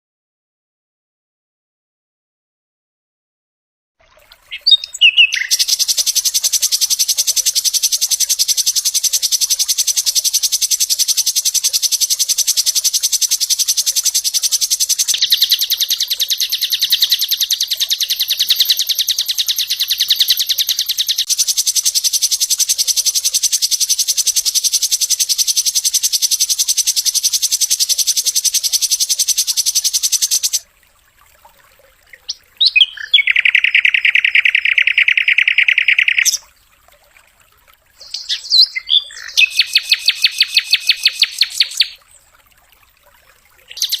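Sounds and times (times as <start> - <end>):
bird call: 4.5 - 30.6, 32.2 - 36.4, 38.0 - 42.0, 43.7 - 44.0
bird fast rattling trill: 4.6 - 30.6, 38.0 - 42.0.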